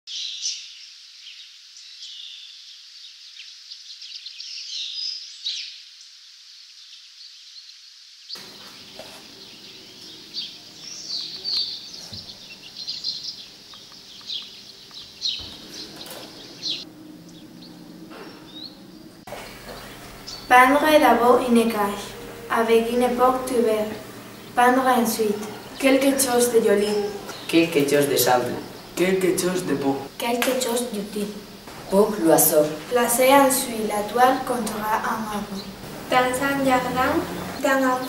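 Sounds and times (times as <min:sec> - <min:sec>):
birds chirping and trilling: 0:00.1 - 0:38.0
low background hum: 0:08.4 - 0:38.0.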